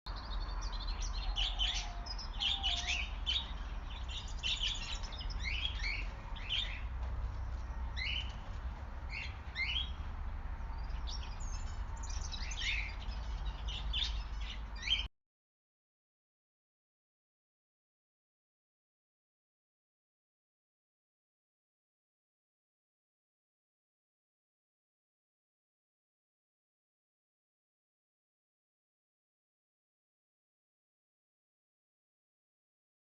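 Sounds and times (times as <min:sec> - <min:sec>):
wild birds chirping: 0:00.1 - 0:15.1.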